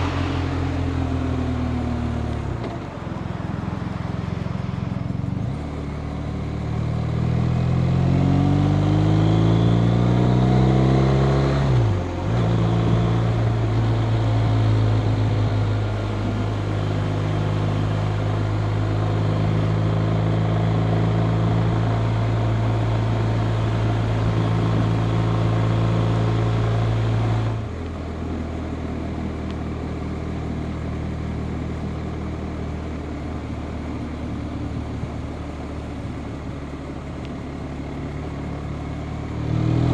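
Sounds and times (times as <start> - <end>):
motorcycle engine: 0.0 - 39.9
wind and road noise: 0.0 - 39.9.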